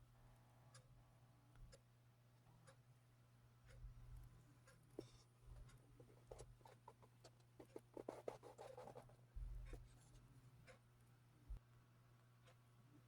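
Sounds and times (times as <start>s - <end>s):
faint scratching and clicks: 3.7s - 11.2s.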